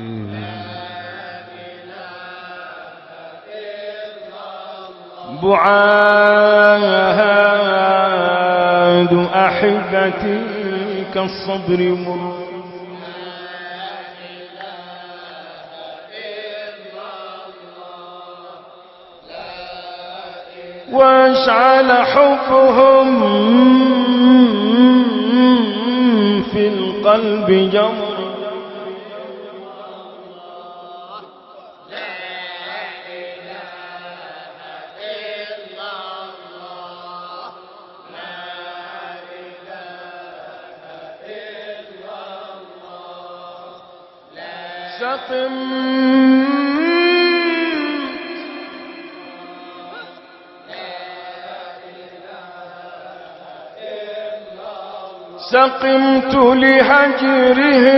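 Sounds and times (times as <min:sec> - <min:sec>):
chant-like melody over drone: 0:00.0 - 0:18.2, 0:19.3 - 0:31.2, 0:44.4 - 0:57.9
voices chanting: 0:45.2 - 0:52.9.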